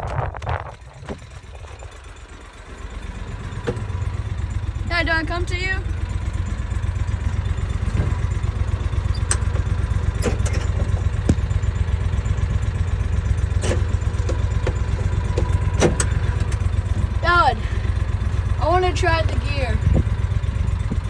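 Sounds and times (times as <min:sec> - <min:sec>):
engine idling rumble: 0:00.0 - 0:21.0
short knocks and clicks: 0:13.6 - 0:16.6.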